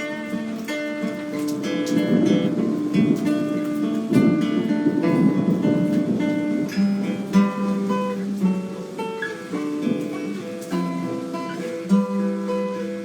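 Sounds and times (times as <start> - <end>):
solo guitar playing: 0.0 - 13.0.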